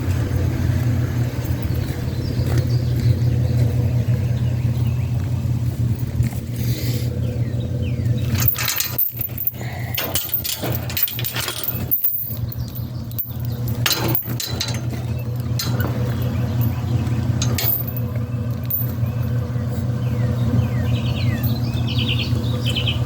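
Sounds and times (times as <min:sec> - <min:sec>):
vehicle engine running: 0:00.0 - 0:23.0
metal clinks and rattles: 0:08.2 - 0:19.4.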